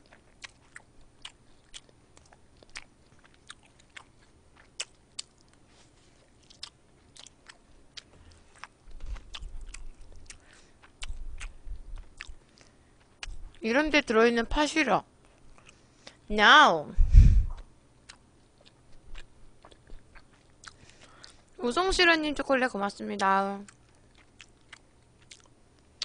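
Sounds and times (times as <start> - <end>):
wet chewing clicks and smacks: 0.0 - 13.6, 18.0 - 21.6, 23.6 - 26.0
low rumble: 16.9 - 17.6.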